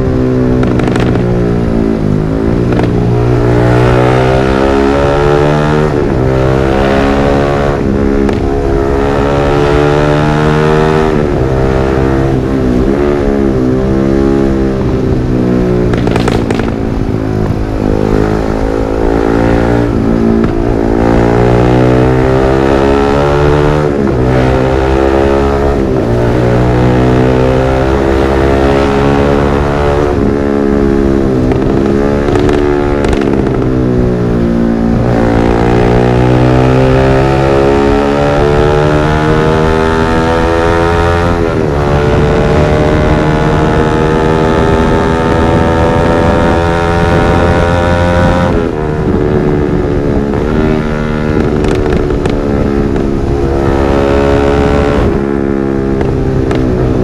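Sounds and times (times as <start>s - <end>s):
exhaust crack: 0.0s - 3.8s, 7.7s - 9.5s, 14.8s - 22.1s, 28.8s - 36.5s, 48.2s - 57.0s
motorcycle engine revving: 0.0s - 57.0s.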